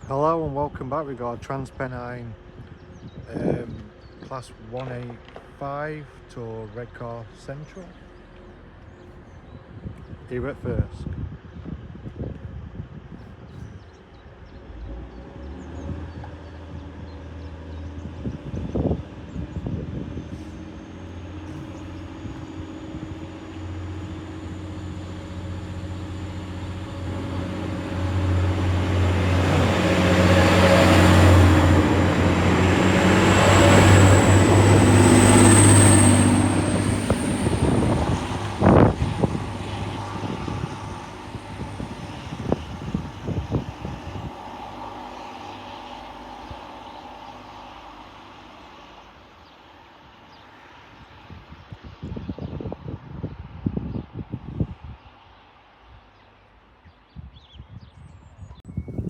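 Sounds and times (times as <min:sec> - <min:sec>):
diesel train passing: 0:14.0 - 0:52.0.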